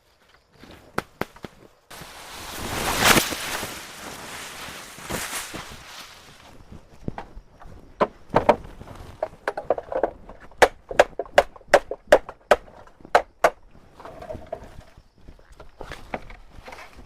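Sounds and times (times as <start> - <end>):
chopping on wood: 10.6 - 13.6.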